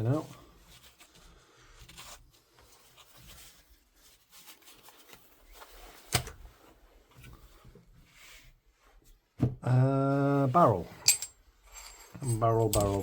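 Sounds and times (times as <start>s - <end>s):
rubbing of rifle parts: 11.0s - 13.0s.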